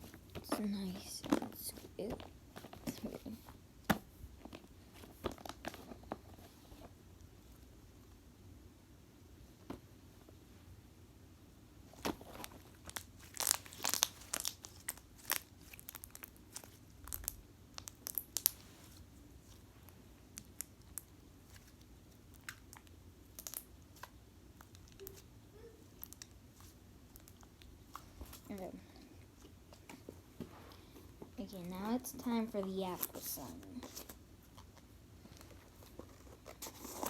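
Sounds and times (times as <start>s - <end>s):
slime crackling and popping: 12.0s - 18.6s, 20.3s - 25.2s.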